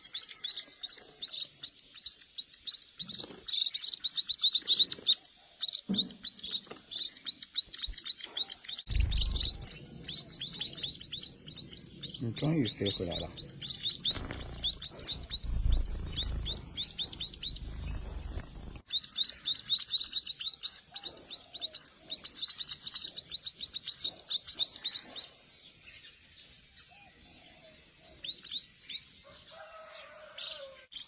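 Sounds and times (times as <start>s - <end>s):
young birds begging chirps: 0.0s - 31.0s
low rumble: 8.9s - 12.2s, 13.2s - 18.8s.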